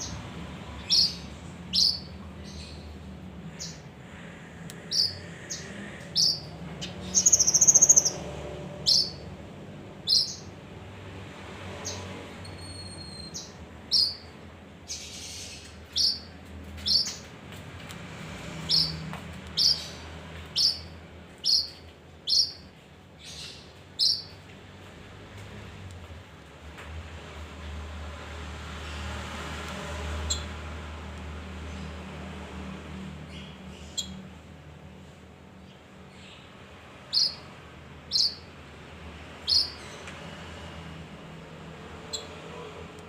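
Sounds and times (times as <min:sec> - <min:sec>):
bird chirping: 0:00.0 - 0:03.9, 0:04.8 - 0:09.4, 0:10.0 - 0:10.6, 0:11.8 - 0:17.3, 0:18.6 - 0:24.4, 0:33.3 - 0:34.2, 0:35.6 - 0:38.5, 0:39.4 - 0:40.0.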